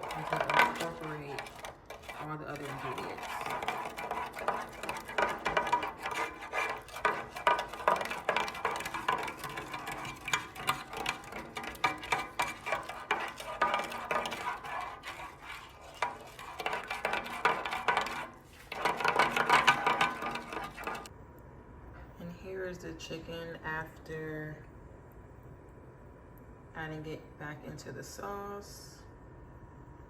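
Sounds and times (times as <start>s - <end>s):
whisk clinking against pan: 0.0s - 21.1s.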